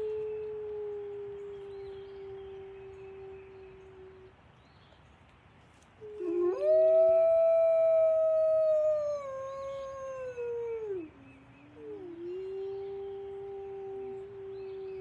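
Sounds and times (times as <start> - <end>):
fainter low howl: 0.0 - 4.4, 6.0 - 15.0
dog howling: 6.1 - 15.0.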